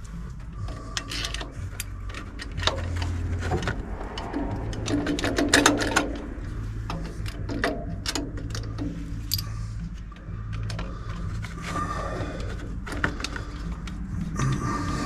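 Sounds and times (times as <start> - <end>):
steady low hum: 0.0 - 15.0
hand tools clinking on metal: 7.2 - 9.6.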